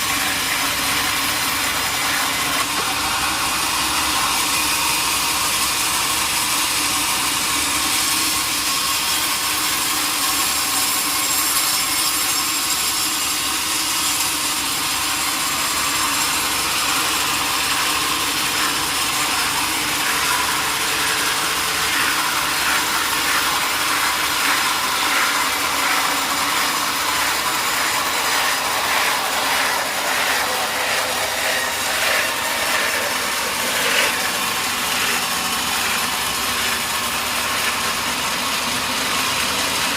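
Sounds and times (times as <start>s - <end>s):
sawmill saw cutting log: 0.0s - 39.9s
regular pulsing: 21.0s - 35.3s.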